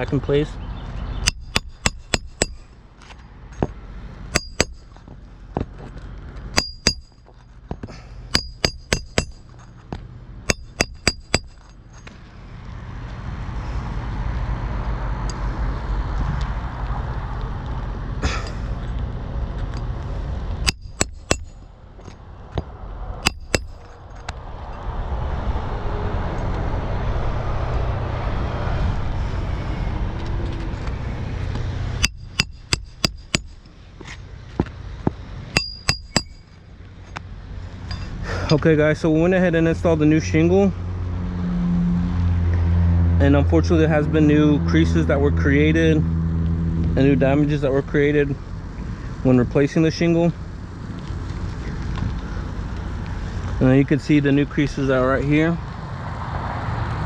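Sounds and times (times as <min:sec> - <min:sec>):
hammer driving nails: 0:01.2 - 0:02.7, 0:04.3 - 0:04.9, 0:06.6 - 0:07.2, 0:08.3 - 0:09.4, 0:10.5 - 0:11.7, 0:20.6 - 0:21.6, 0:23.2 - 0:24.0, 0:32.0 - 0:33.6, 0:35.6 - 0:36.4.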